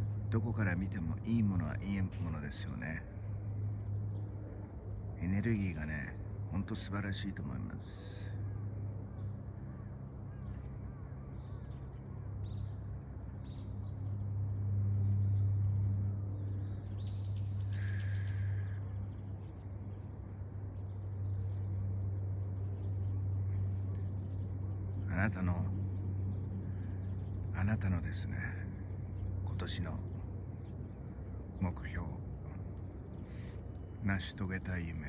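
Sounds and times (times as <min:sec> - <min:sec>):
birds chirping: 0:00.0 - 0:35.0
steady low hum: 0:00.0 - 0:35.0
loud long bird call: 0:16.0 - 0:20.2.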